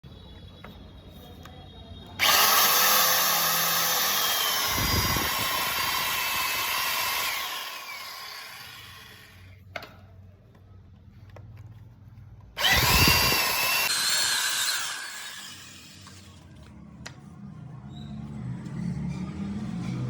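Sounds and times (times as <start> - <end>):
power tool running: 2.2 - 9.6, 12.6 - 16.4.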